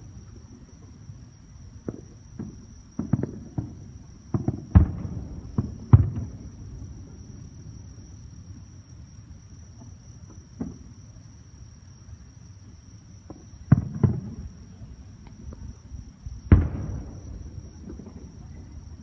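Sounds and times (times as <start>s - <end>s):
fireworks bursting: 16.4s - 19.0s.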